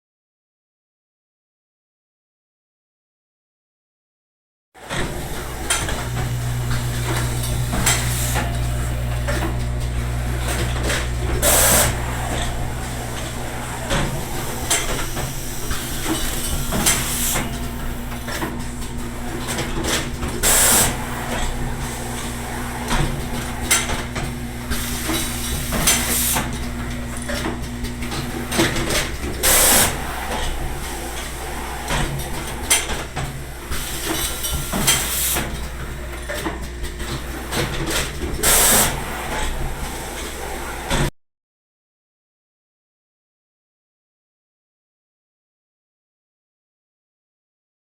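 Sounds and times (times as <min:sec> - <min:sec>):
train humming and rattling: 0:05.0 - 0:40.9.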